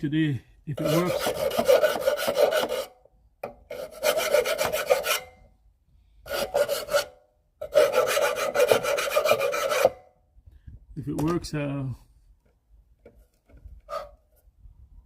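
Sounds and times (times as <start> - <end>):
rasping scraping noise: 0.7 - 2.9, 3.7 - 5.5, 6.3 - 10.0, 13.6 - 14.5.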